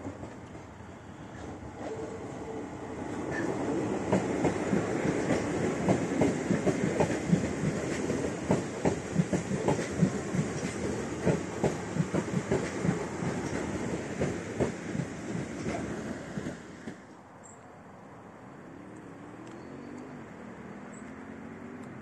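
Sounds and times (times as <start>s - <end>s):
train rumble: 0.0s - 17.2s
train wheels clattering over rail joints: 3.3s - 17.0s.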